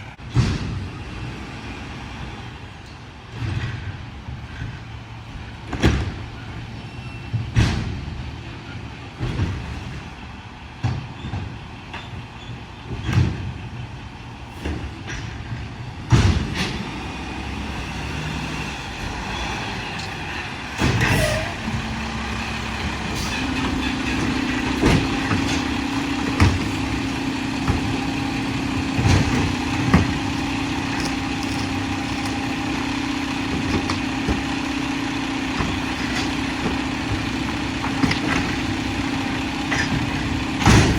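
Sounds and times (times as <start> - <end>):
diesel engine running: 0.0 - 40.9
metal clanks and bangs: 0.1 - 1.0, 2.6 - 40.9
loud clatter: 18.4 - 40.9.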